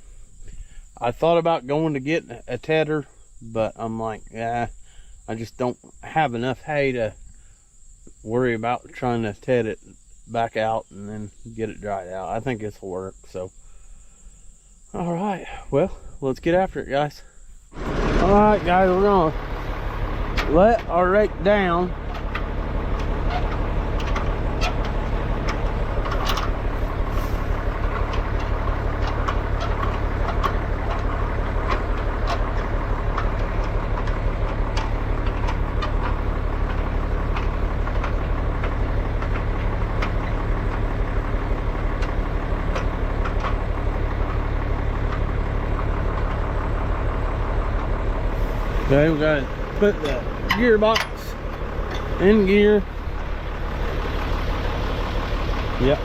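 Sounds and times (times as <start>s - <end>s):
tractor engine running: 17.7s - 56.0s
metallic clicks and rattles: 22.1s - 40.8s.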